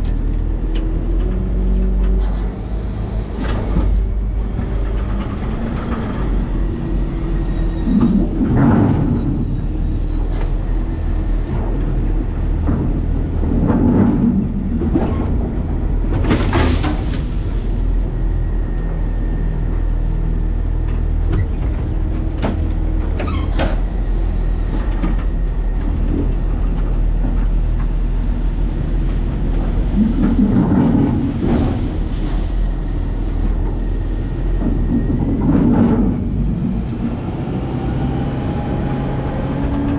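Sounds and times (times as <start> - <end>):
garbage truck engine droning: 0.0 - 39.9.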